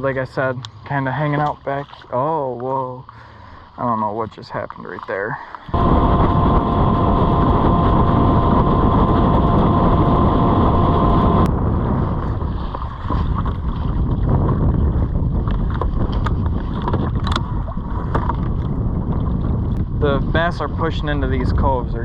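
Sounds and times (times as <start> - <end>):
outboard motor running: 5.7 - 11.5
steady whine: 5.7 - 11.5
wind buffeting microphone: 5.7 - 22.0.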